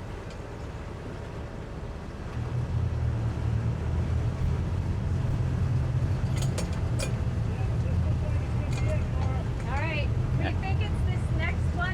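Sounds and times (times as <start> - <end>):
outboard motors rumbling: 0.0 - 11.9.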